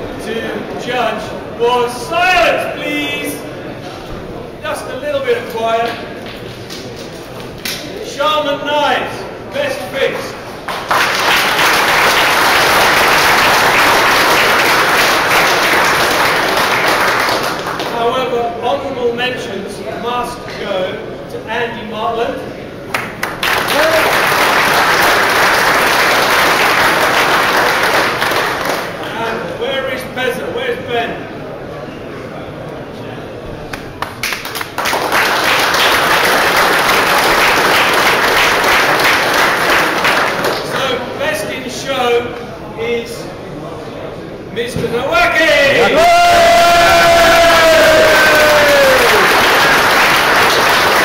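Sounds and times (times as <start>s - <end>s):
audience applauding: 10.6s - 18.0s, 22.9s - 29.1s, 34.0s - 41.0s, 45.8s - 51.0s.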